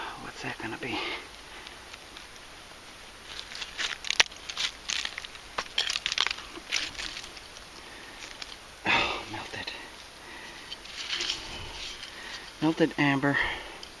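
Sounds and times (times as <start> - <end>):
digging crunches and scrapes: 3.0 - 14.0.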